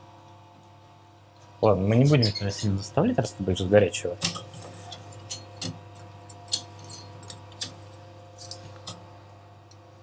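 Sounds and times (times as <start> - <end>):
steady electrical hum: 0.0 - 10.0
metal pieces and tools clinking: 6.4 - 7.4.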